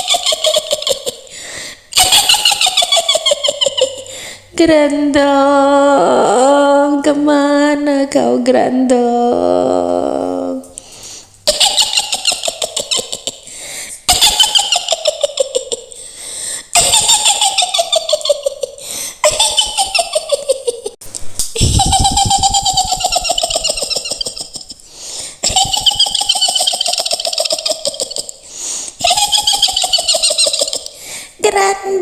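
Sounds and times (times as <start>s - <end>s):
woman cackling laugh: 0.0s - 1.3s, 2.0s - 4.1s, 11.4s - 13.5s, 14.1s - 16.0s, 16.8s - 28.4s, 29.0s - 31.0s.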